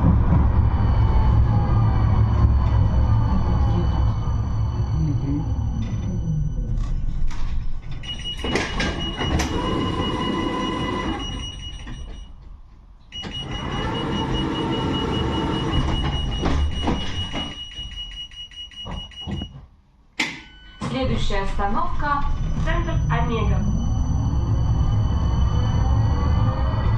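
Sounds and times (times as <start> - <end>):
high-pitched whine: 0.0 - 7.9, 21.5 - 26.9
tram running rumble: 0.0 - 12.2.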